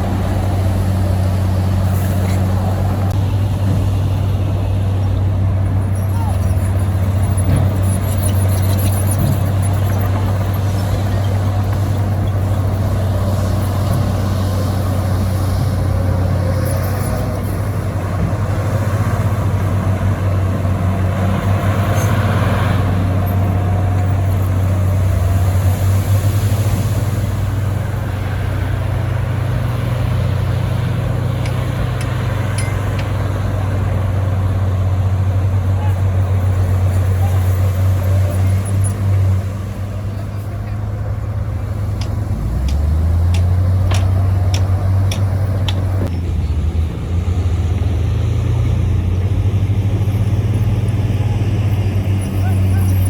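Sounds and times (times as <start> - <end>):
diesel machinery engine drone: 0.0 - 53.0.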